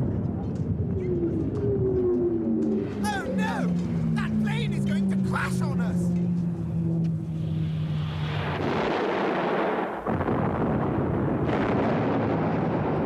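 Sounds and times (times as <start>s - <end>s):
plane engine drone: 0.0s - 11.4s
explosion and crashing roar: 7.5s - 13.0s.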